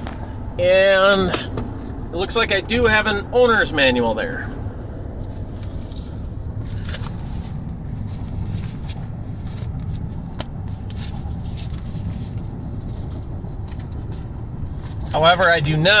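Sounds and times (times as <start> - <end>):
car cabin road rumble: 0.0 - 16.0
light rustling: 4.9 - 16.0.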